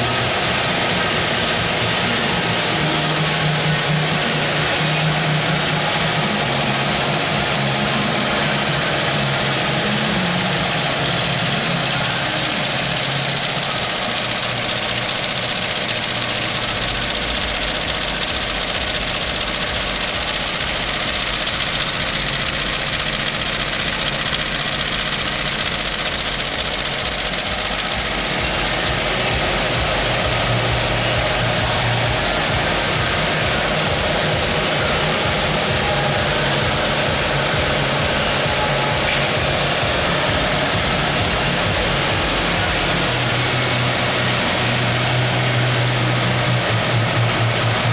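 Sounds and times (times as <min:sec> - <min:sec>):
embroidery machine clatter and hum: 0:00.0 - 0:47.9.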